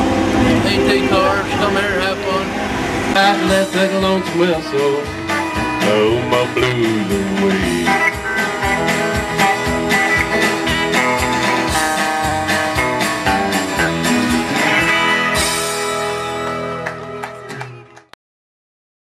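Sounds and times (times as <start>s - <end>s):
guitar: 0.0s - 18.2s
steady drum beat: 3.2s - 16.4s.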